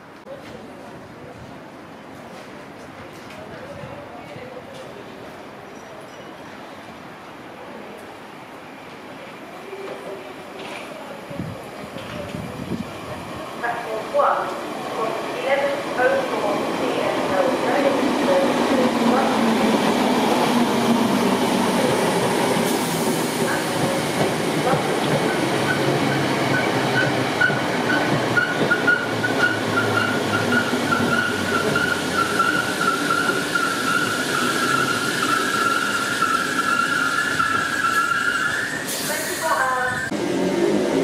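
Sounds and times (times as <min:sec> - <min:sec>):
train wheels on rails: 0:16.0 - 0:41.0
high wheel squeal: 0:26.6 - 0:39.2.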